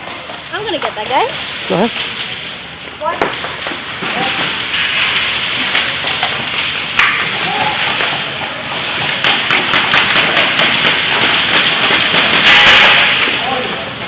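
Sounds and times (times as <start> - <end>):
burst of noise: 10.4 - 13.6.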